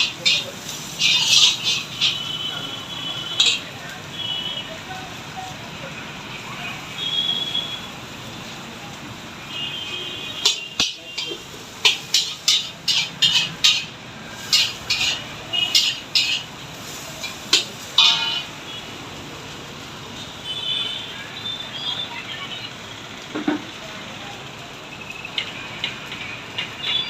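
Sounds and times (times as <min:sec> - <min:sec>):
metal utensils clanging on pan: 0:00.0 - 0:03.8, 0:10.4 - 0:18.6.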